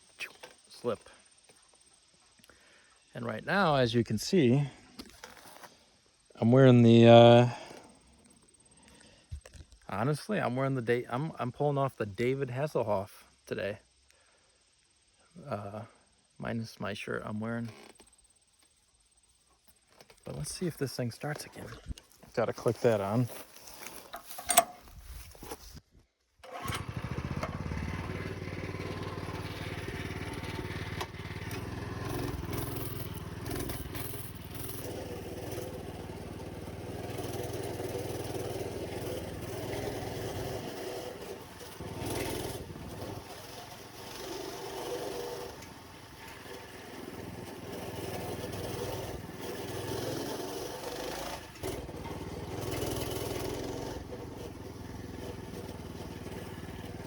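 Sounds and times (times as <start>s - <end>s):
minibike engine running: 26.4s - 57.0s.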